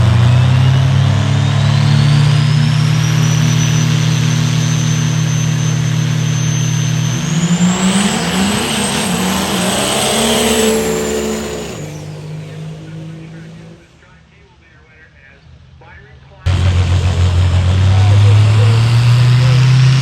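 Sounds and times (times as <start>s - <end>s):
high turbo whistle: 0.0s - 12.8s
diesel truck engine running hard: 0.0s - 14.2s, 15.5s - 20.0s.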